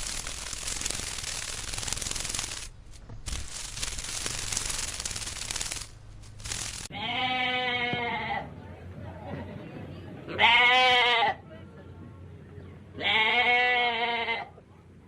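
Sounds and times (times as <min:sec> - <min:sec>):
rapid crackling clatter of clicks: 0:00.0 - 0:02.7, 0:03.3 - 0:06.9
loud long bleat: 0:06.9 - 0:08.4, 0:10.3 - 0:11.4, 0:13.0 - 0:14.6.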